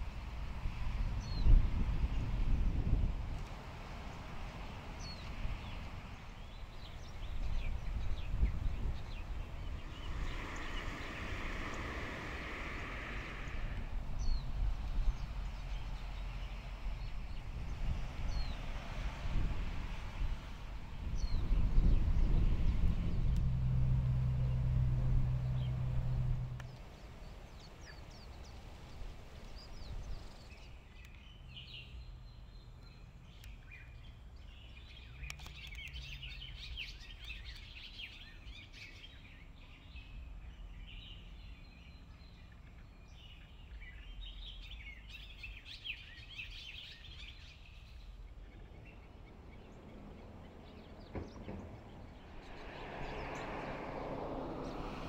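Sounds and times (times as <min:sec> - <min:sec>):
birds chirping and singing: 0:05.0 - 0:18.7, 0:21.0 - 0:23.4, 0:25.3 - 0:53.6
low hum: 0:07.9 - 0:16.2, 0:20.7 - 0:27.7.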